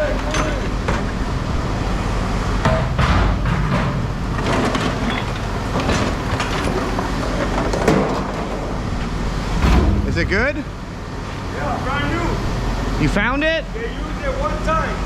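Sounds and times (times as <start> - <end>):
machinery rumbling: 0.0 - 15.0
metallic clanks and knocks: 2.6 - 10.5.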